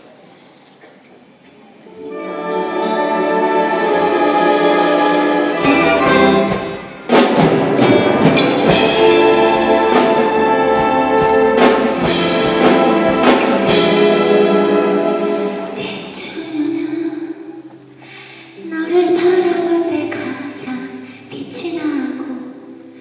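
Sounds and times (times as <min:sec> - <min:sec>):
orchestra playing: 0:02.0 - 0:18.6.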